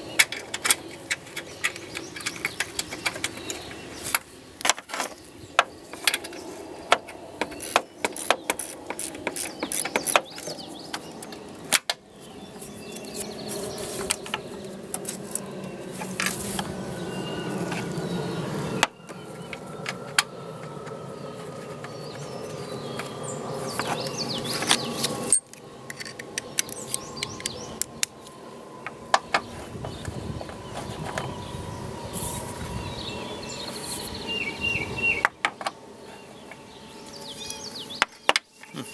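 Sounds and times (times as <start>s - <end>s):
birds chirping: 0.0s - 38.9s
hand tools clicking on metal: 0.1s - 5.0s.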